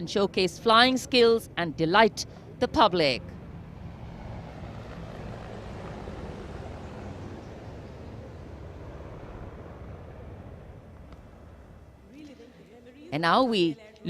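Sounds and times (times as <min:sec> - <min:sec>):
aircraft flying overhead: 0:00.0 - 0:13.5.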